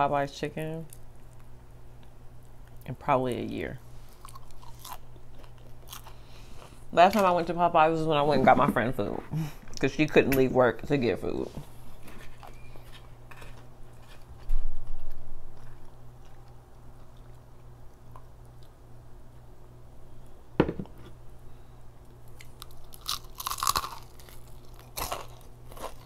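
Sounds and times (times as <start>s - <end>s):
crunching and chewing fried chicken: 3.9s - 7.3s, 11.8s - 19.5s, 22.1s - 26.0s.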